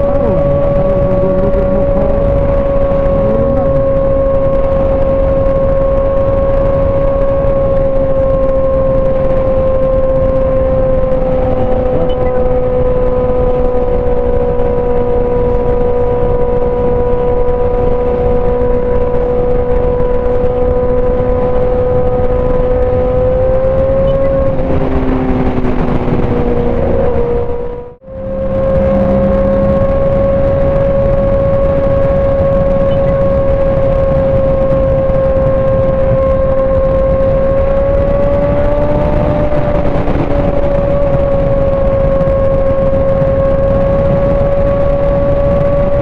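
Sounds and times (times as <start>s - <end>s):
motorcycle engine cruising: 0.0s - 46.0s
wind rushing over microphone: 0.0s - 46.0s.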